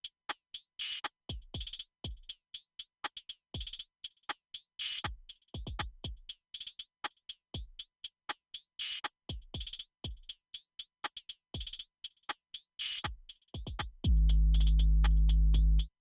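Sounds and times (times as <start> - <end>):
hi-hat ticks: 0.0 - 16.0
deep kick drum: 13.6 - 15.9.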